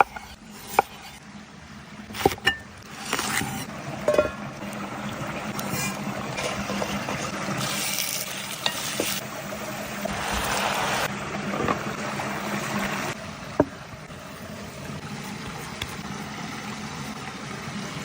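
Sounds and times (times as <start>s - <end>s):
food sizzling in a pot: 3.3s - 12.9s.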